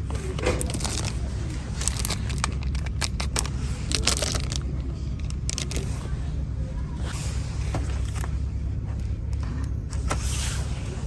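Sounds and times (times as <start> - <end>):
clicks and rustling of goods: 0.0 - 6.2
store background rumble: 0.0 - 11.0.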